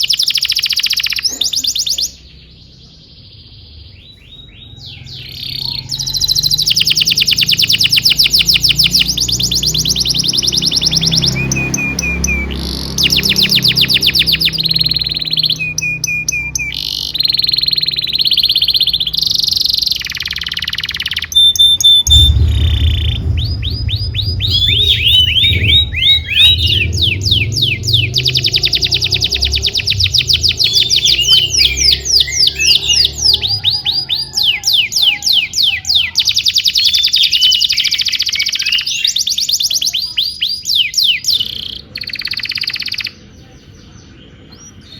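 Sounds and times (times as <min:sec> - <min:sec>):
canary singing trills: 0:00.0 - 0:44.9
low steady hum: 0:22.0 - 0:32.6.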